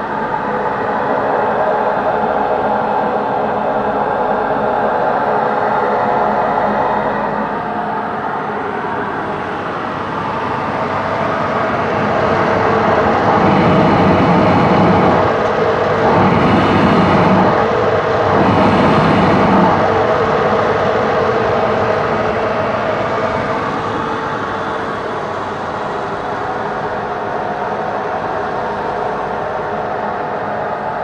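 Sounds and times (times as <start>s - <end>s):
machine tool motor hum and whine: 12.6s - 20.1s
low rumble: 13.0s - 20.0s.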